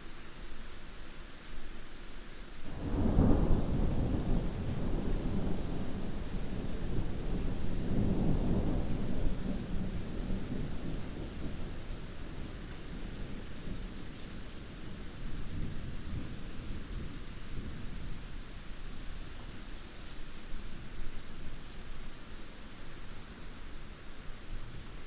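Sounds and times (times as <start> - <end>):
heavy rain falling: 0.3 - 25.0
low thunder rumble: 2.7 - 18.5.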